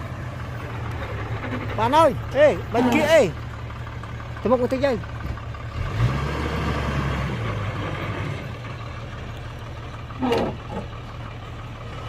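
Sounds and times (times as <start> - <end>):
heavy diesel engine running: 0.0 - 12.0
person shouting: 2.7 - 3.4.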